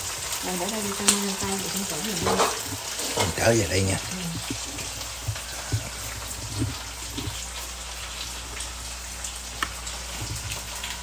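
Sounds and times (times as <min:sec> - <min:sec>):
noodles sizzling in a wok: 0:00.0 - 0:11.0.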